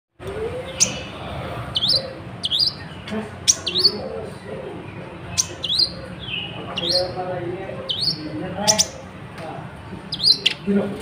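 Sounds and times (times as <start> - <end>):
sunbird chirping: 0.6 - 4.2, 5.2 - 7.2, 10.1 - 10.7.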